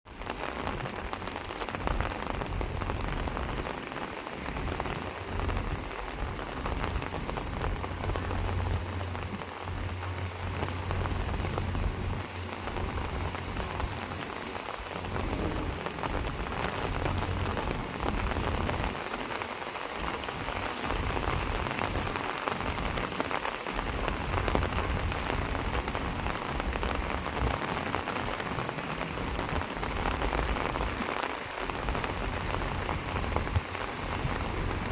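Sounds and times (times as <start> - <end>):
rain pattering on surfaces: 0.0 - 34.9
low rumble: 5.3 - 19.0.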